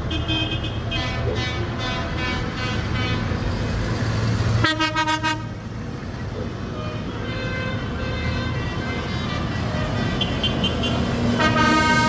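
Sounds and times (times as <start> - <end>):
horns tooting: 0.0 - 3.5, 6.6 - 12.0
tractor engines droning: 0.0 - 12.0.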